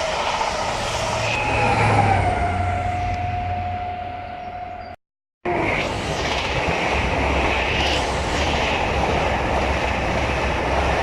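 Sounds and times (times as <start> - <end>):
train wheels on rails: 5.5 - 11.0.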